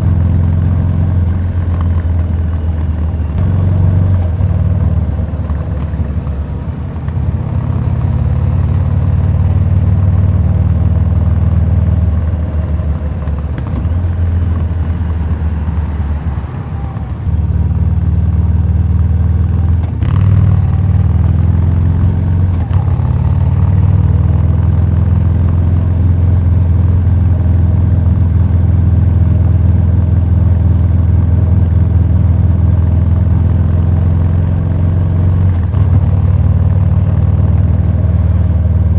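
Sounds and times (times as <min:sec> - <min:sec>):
motorcycle engine burbling: 0:00.0 - 0:38.9.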